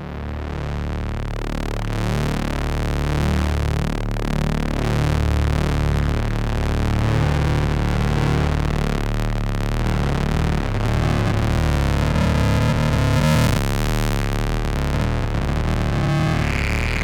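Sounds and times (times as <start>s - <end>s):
distorted synthesizer drone: 9.6s - 17.0s.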